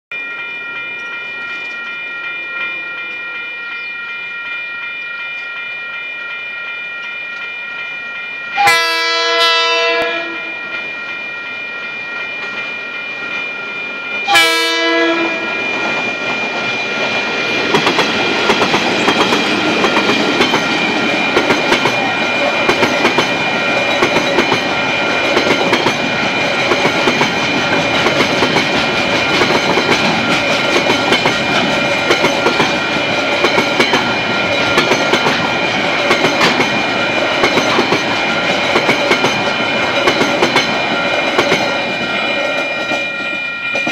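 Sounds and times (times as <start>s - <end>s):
level crossing alarm bell: 0.1s - 43.9s
train horn blast: 8.6s - 10.6s, 14.3s - 15.6s
train wheels clickety-clack: 14.2s - 43.9s.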